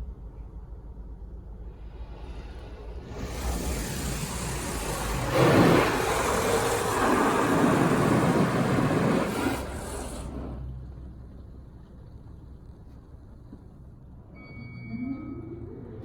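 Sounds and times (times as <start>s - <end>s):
car wash machine rushing: 1.8s - 11.0s.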